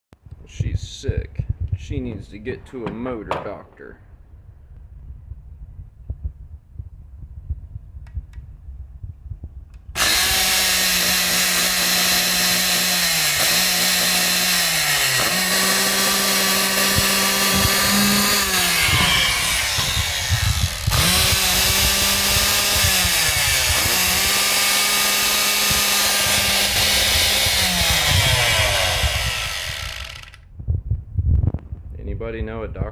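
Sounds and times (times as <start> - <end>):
electric motor whining: 10.0 - 30.4.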